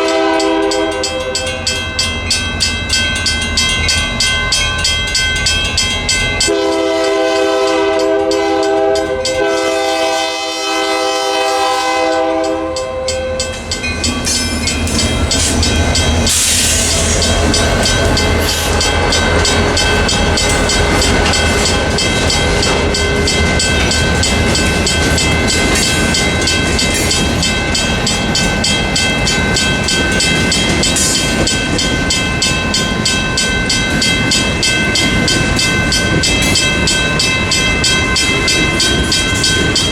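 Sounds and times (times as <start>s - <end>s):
locomotive horn chord: 0.0s - 1.6s, 6.5s - 13.4s
railroad crossing bell clanging: 0.0s - 39.9s
locomotive engines rumbling: 11.9s - 39.9s
train wheels clacking on rails: 12.0s - 39.9s.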